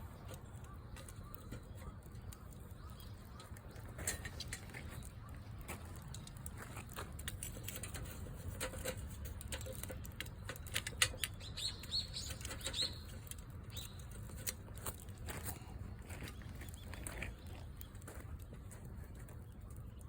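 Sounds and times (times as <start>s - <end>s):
campfire crackling and popping: 0.0s - 20.0s
low fire rumble: 0.0s - 20.0s.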